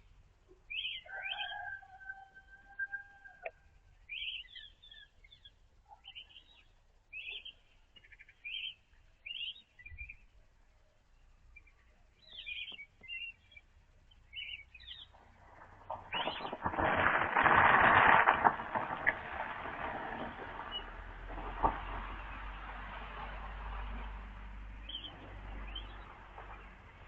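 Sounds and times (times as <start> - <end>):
songbird twittering: 0.7 - 1.8, 4.1 - 10.4, 11.2 - 15.2.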